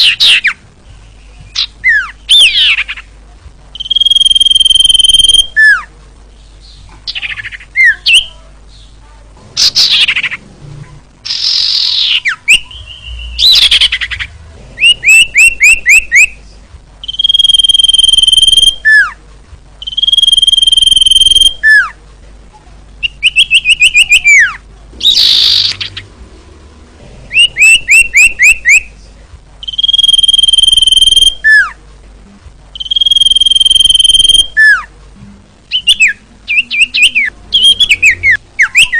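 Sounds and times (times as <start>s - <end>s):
bird high whistled notes: 17.0s - 19.1s, 19.8s - 21.9s, 27.3s - 28.9s, 29.6s - 31.8s, 32.8s - 34.9s.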